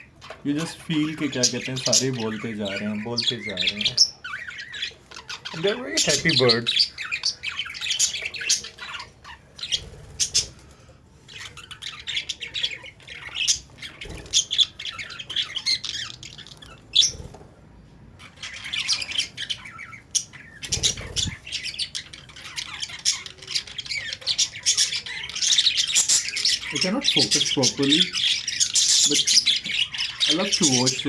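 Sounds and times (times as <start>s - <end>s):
budgerigars chattering: 0.0s - 17.4s, 18.2s - 31.0s.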